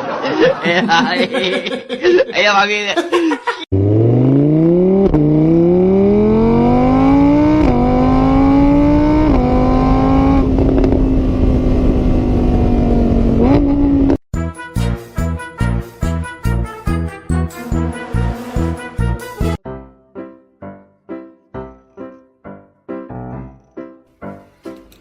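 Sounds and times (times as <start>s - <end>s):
car engine accelerating: 3.7s - 14.2s.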